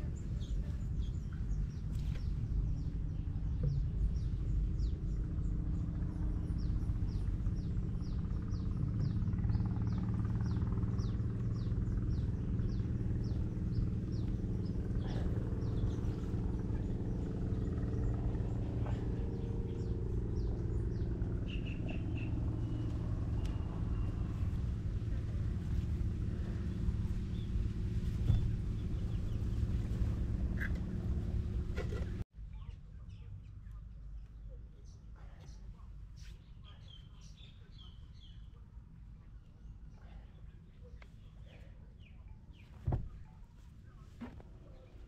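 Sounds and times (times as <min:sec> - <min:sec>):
bird chirping: 0:00.0 - 0:24.6
low machine hum: 0:00.0 - 0:45.0.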